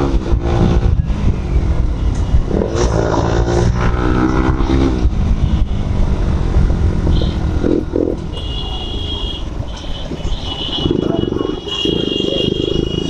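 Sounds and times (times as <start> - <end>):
wind and road noise: 0.0 - 13.0
motorcycle engine running: 4.3 - 13.0.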